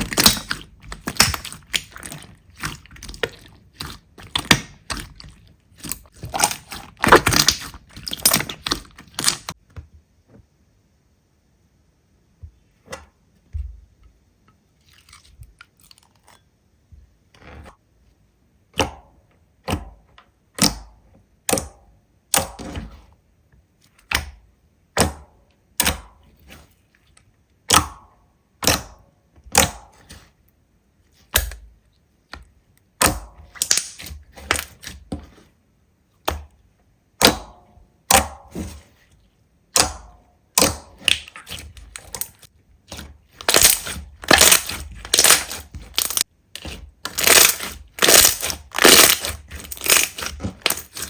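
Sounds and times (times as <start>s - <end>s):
slime popping and crackling: 0.0s - 9.6s, 33.0s - 35.0s, 39.7s - 51.0s.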